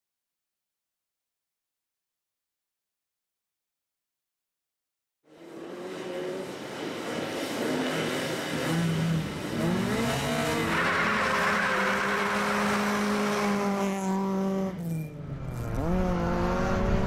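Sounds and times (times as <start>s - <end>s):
car engine revving: 5.3s - 17.0s
rush of tyre noise: 5.3s - 17.0s.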